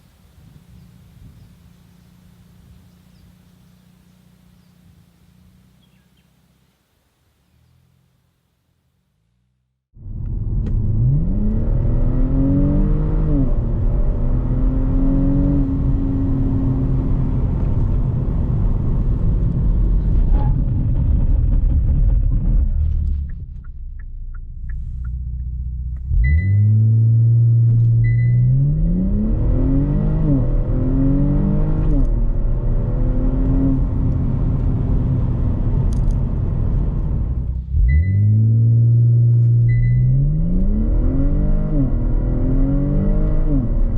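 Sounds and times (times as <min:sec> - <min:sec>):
car engine accelerating hard: 0:10.0 - 0:21.3, 0:24.6 - 0:43.9.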